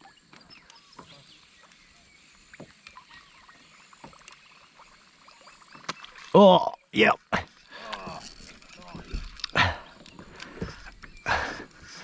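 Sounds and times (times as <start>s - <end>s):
water against kayak hull: 0.1s - 6.5s, 7.2s - 12.0s
small knocks and ticks: 3.9s - 4.6s, 7.5s - 12.0s.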